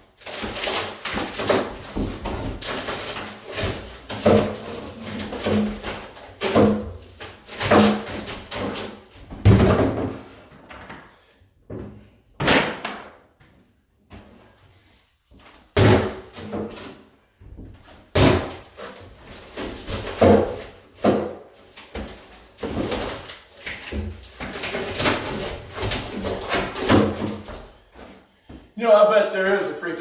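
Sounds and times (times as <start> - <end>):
bangs and knocks on wood: 0.5 - 11.0, 15.8 - 16.8, 18.1 - 18.6, 19.6 - 23.2, 23.9 - 27.7.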